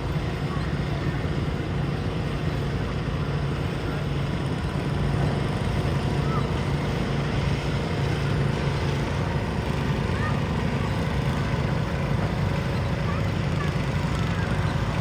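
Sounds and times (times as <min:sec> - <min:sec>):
garden tractor engine running: 0:00.0 - 0:15.0.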